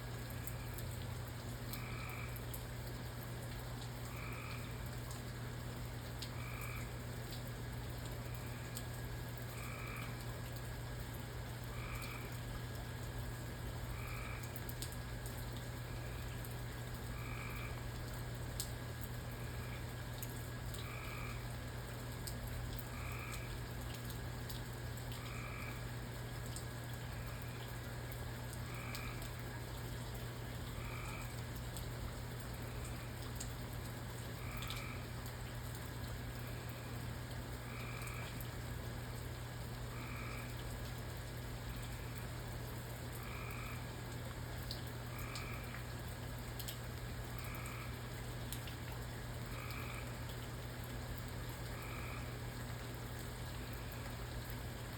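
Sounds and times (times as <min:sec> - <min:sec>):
faint ticks: 0:00.2 - 0:05.4, 0:06.0 - 0:54.9
frog croaking: 0:01.7 - 0:02.6, 0:04.0 - 0:05.1, 0:06.2 - 0:07.0, 0:08.2 - 0:10.4, 0:11.6 - 0:12.8, 0:13.8 - 0:18.1, 0:19.0 - 0:21.5, 0:22.7 - 0:33.5, 0:34.2 - 0:35.5, 0:37.6 - 0:38.6, 0:39.8 - 0:40.7, 0:43.0 - 0:46.1, 0:47.2 - 0:48.6, 0:49.4 - 0:54.6.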